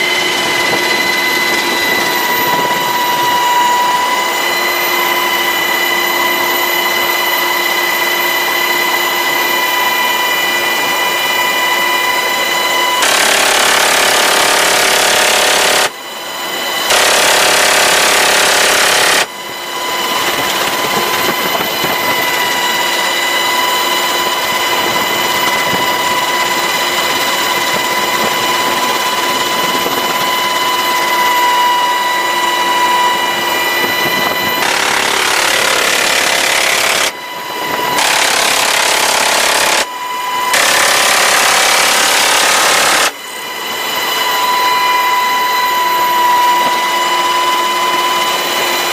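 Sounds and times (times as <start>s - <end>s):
helicopter high whine: 0.0s - 48.9s
machine-gun bursts: 13.0s - 15.9s, 16.9s - 19.3s, 34.6s - 37.1s, 38.0s - 39.9s, 40.5s - 43.1s.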